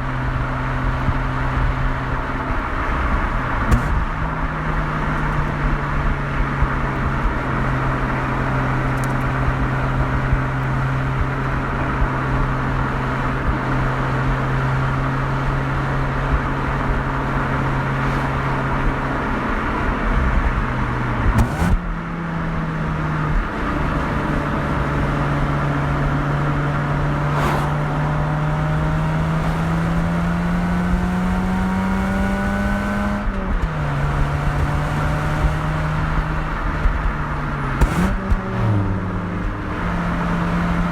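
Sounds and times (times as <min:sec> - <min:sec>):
rotary engine and exhaust: 0:00.0 - 0:40.9.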